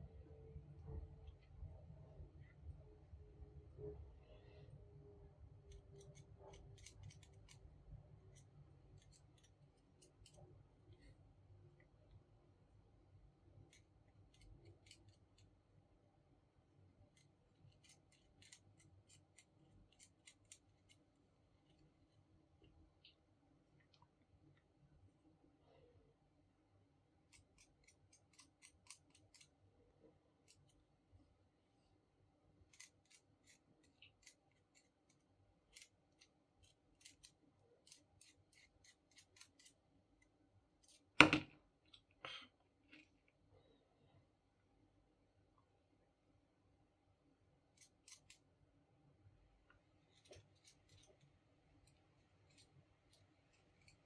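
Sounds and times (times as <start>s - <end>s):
light clicks and snips: 5.6s - 7.7s, 49.7s - 54.0s.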